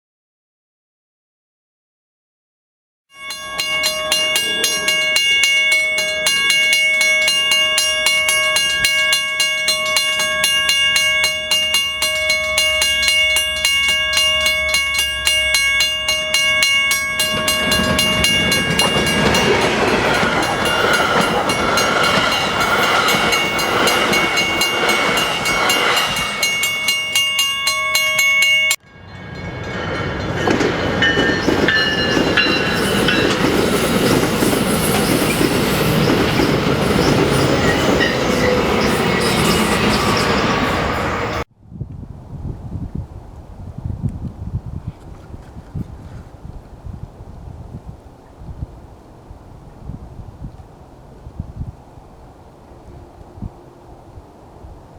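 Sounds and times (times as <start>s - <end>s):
level crossing warning bell: 3.1s - 41.4s
train rumble and wheel noise: 3.2s - 41.5s.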